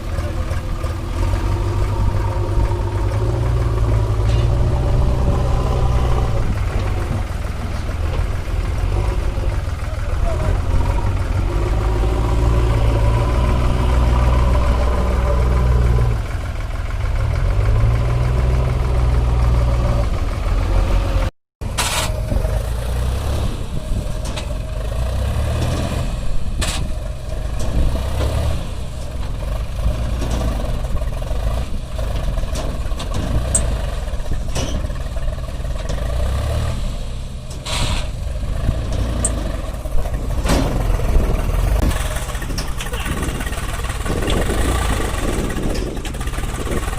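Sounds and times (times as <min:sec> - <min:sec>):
heavy diesel engine running: 0:00.0 - 0:46.9.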